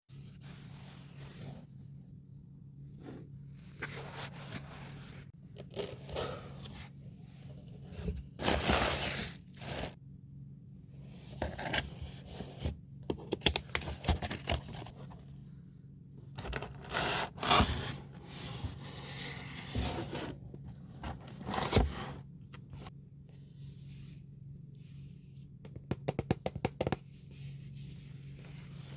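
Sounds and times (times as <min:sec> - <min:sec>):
objects scraping and rustling: 0:02.9 - 0:10.0, 0:16.4 - 0:22.9.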